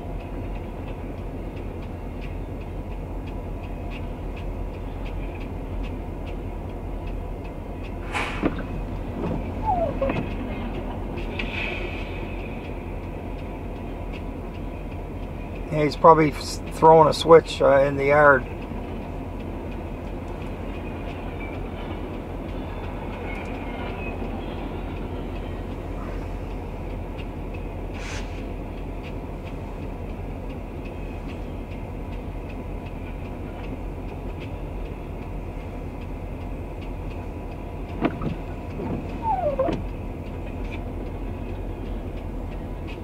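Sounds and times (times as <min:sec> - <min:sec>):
rumble of train wheels on rail: 0:00.0 - 0:43.0
squeal falling in pitch: 0:09.6 - 0:10.2, 0:39.2 - 0:39.7.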